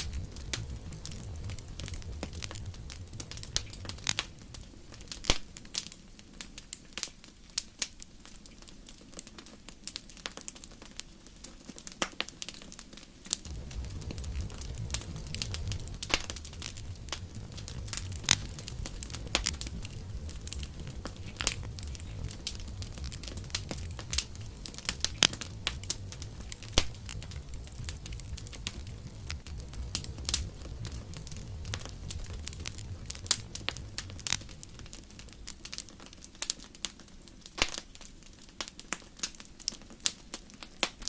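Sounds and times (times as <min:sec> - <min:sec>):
low steady rumble: 0:00.0 - 0:05.7, 0:13.4 - 0:36.5
campfire crackling and popping: 0:00.0 - 0:41.0.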